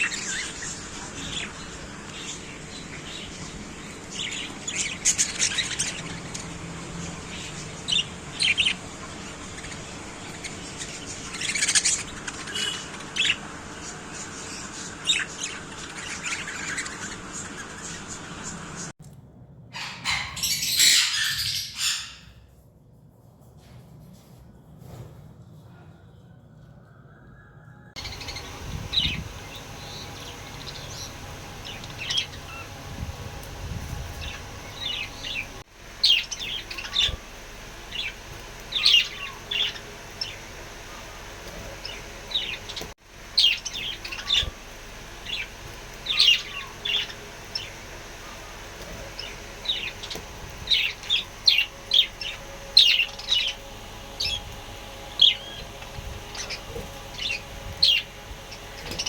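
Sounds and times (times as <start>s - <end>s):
parrots chirping: 0.0s - 18.9s, 19.7s - 22.4s, 28.0s - 59.0s.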